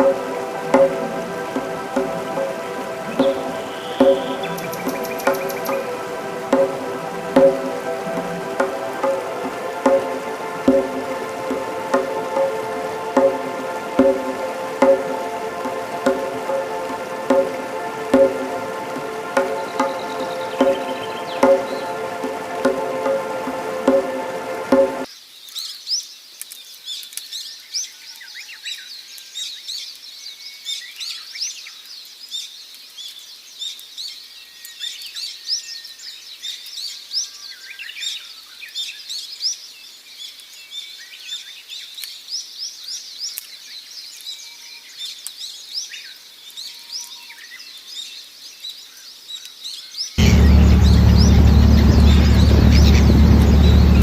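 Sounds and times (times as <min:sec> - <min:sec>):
small birds chirping: 0:03.0 - 0:06.0, 0:25.1 - 0:54.0.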